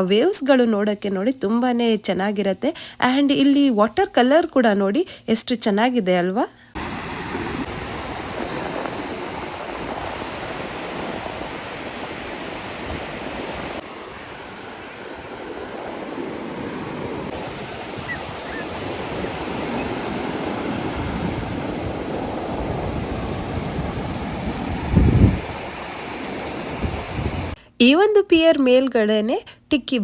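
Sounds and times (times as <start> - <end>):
waves breaking on beach: 6.8 - 27.6
wind rumble on microphone: 6.8 - 27.6.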